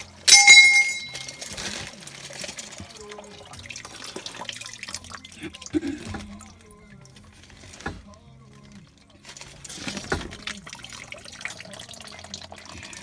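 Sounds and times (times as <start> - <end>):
water trickling and dripping: 0.2 - 13.0
sharp metallic clank: 0.3 - 1.4.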